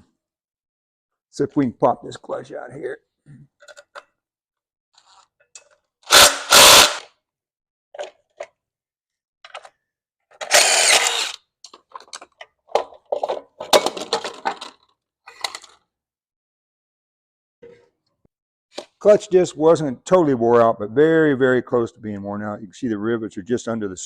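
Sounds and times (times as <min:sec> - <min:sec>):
power tool bursts: 0:06.1 - 0:07.1, 0:10.4 - 0:11.4.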